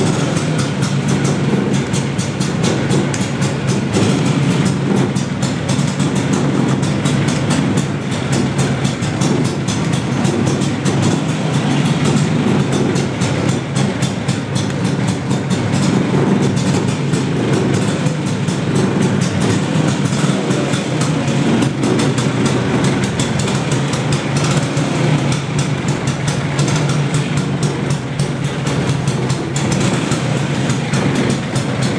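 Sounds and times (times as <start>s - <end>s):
scooter two-stroke engine running: 0.0s - 31.9s.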